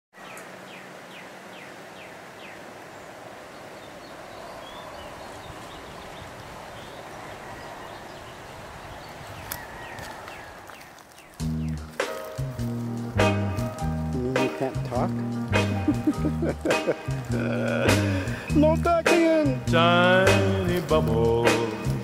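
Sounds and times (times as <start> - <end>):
steady background hiss: 0.2 - 9.2, 11.8 - 22.0
bird singing high descending notes: 3.5 - 10.5.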